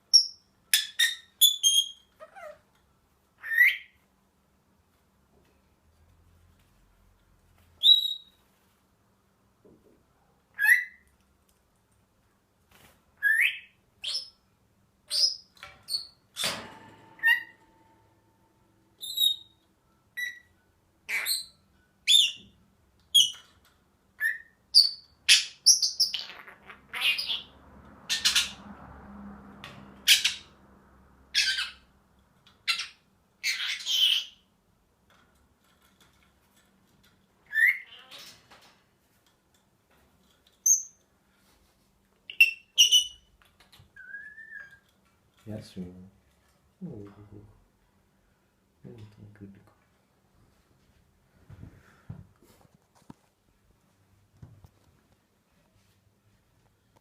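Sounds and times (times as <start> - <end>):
parrot chirping and squawking: 0.1 - 2.7, 3.4 - 4.0, 10.5 - 11.1, 13.2 - 14.4, 15.1 - 16.2, 17.2 - 17.6, 20.2 - 22.5, 24.2 - 28.7, 30.0 - 30.6, 31.3 - 31.9, 32.5 - 34.5, 37.4 - 38.4, 42.3 - 43.3.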